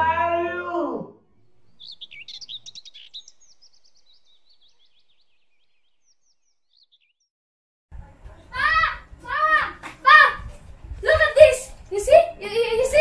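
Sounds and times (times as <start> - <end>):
small birds chirping and trilling: 1.4 - 7.3.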